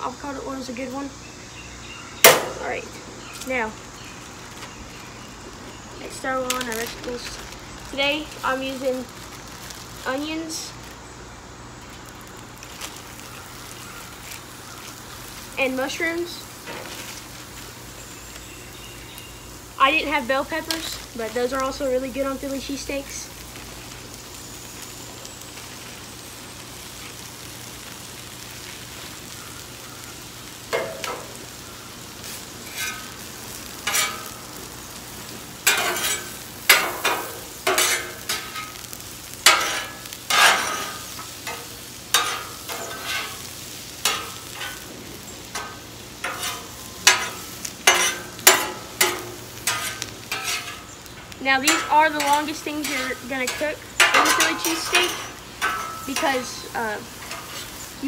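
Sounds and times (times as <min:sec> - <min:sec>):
vegetables sizzling on a griddle: 0:00.0 - 0:58.0
spatula scraping a griddle: 0:29.0 - 0:34.6, 0:35.2 - 0:58.0.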